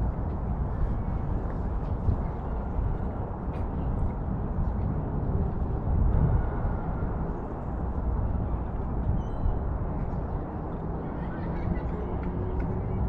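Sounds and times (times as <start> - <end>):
wind rumbling on microphone: 0.0 - 13.0
faint high chirp: 9.2 - 9.6.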